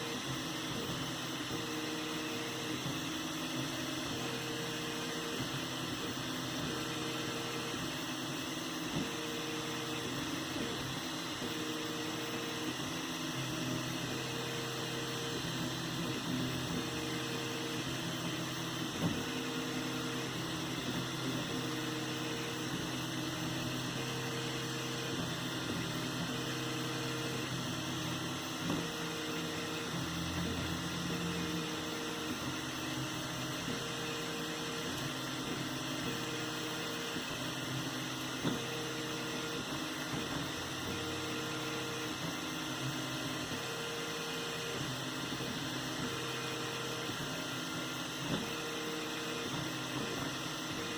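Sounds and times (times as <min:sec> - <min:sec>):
motor and fan hum: 0:00.0 - 0:50.9.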